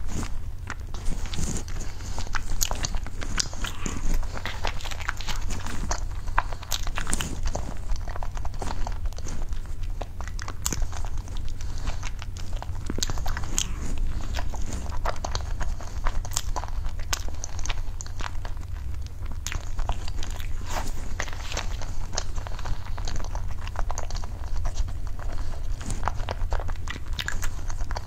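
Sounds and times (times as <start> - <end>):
biting and chewing cake: 0.0 - 28.0
steady low hum: 0.0 - 28.0.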